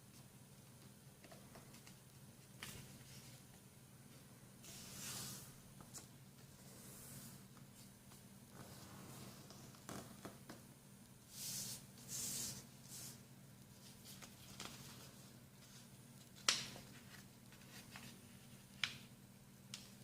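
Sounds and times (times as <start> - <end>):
paper rustling: 13.8 - 19.0.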